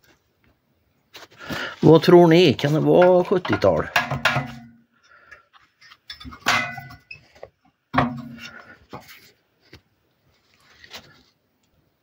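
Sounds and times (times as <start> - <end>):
metal knocks on wood stove: 3.4 - 4.8, 6.4 - 7.0, 8.0 - 8.4.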